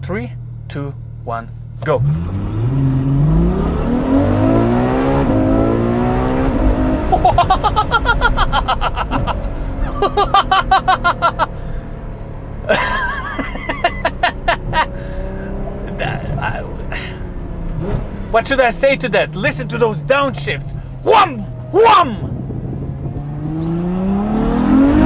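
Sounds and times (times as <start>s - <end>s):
sports car engine accelerating: 0.3s - 25.0s.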